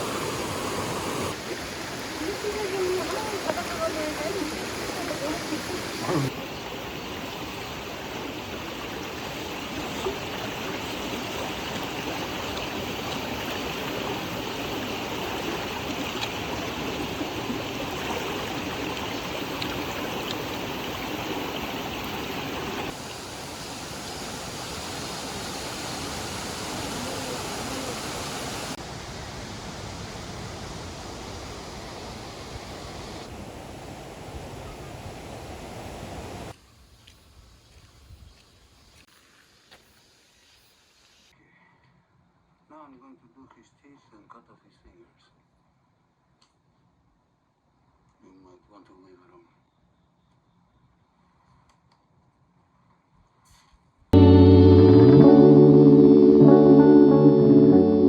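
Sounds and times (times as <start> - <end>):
rushing stream water: 0.0 - 36.5.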